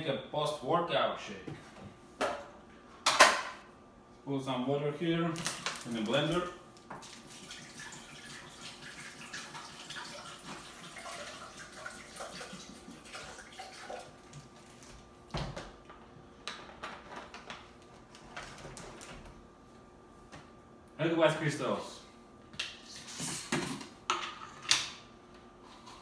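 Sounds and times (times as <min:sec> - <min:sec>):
water pouring into blender jar: 0:07.0 - 0:14.2.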